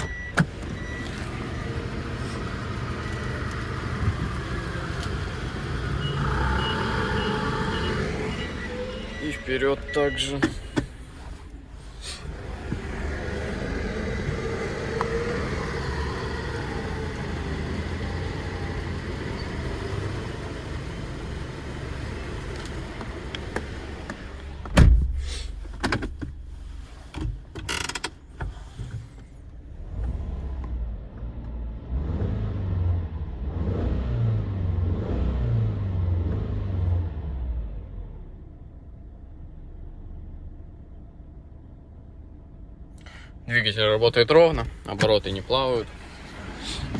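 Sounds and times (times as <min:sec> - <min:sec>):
car engine running: 0:00.0 - 0:24.8, 0:41.2 - 0:46.9
loud thump: 0:24.7 - 0:25.3.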